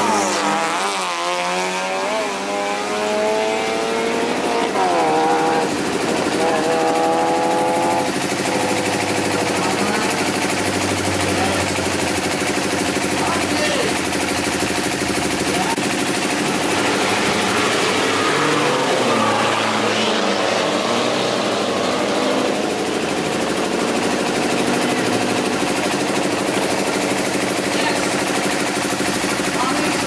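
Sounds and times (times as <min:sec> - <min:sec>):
car engines idling: 0:00.0 - 0:30.0
engine revving up and down: 0:00.0 - 0:30.0.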